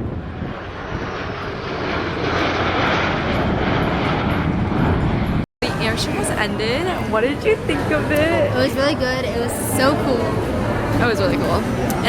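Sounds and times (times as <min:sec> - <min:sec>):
airplane engine passing: 0:00.0 - 0:08.6.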